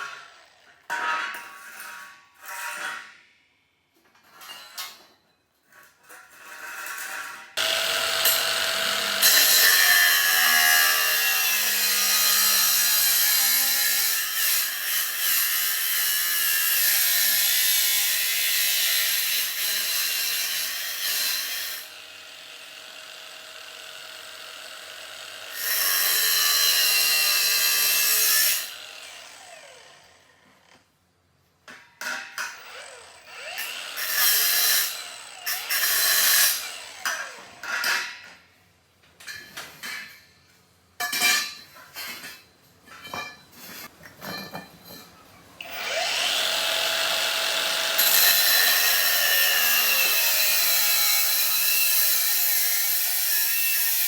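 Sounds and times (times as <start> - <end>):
power tool running under load: 7.6 - 13.4, 21.1 - 30.0, 45.6 - 53.4.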